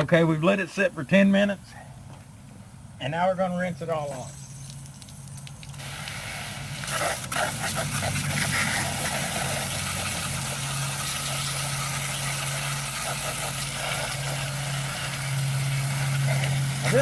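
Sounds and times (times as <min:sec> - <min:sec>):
hose spraying water: 0:03.9 - 0:17.0
water spattering: 0:04.1 - 0:17.0.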